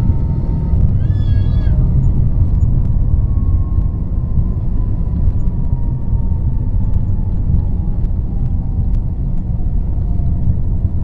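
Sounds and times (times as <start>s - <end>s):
airliner cabin rumble: 0.0s - 11.0s
faint engine whine: 0.0s - 11.0s.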